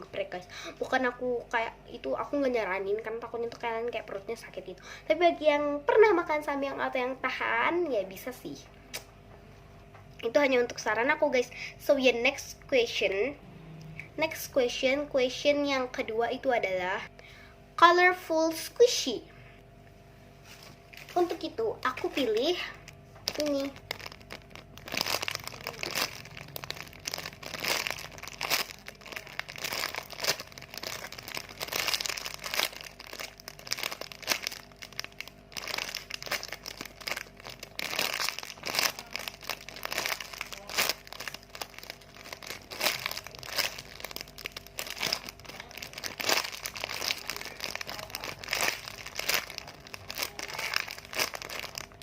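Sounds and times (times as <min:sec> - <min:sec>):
plastic crinkling: 0:20.4 - 0:52.0.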